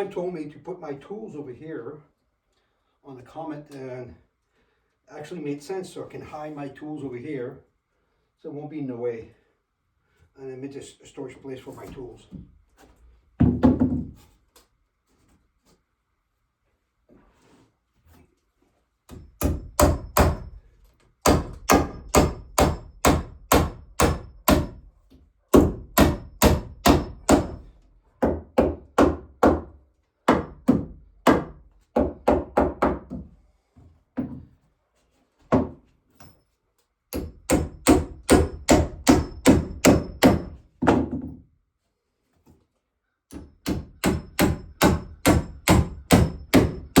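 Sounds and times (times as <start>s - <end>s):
hammer striking wood: 19.1s - 20.6s, 21.2s - 24.9s, 25.5s - 33.2s, 37.2s - 41.2s, 43.3s - 47.0s.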